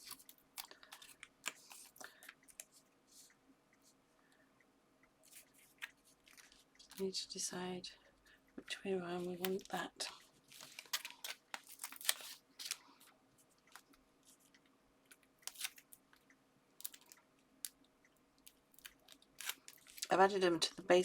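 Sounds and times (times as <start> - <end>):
paper crinkling: 0.0 - 3.3, 5.2 - 7.0, 9.2 - 16.1, 16.8 - 17.2, 18.4 - 20.1.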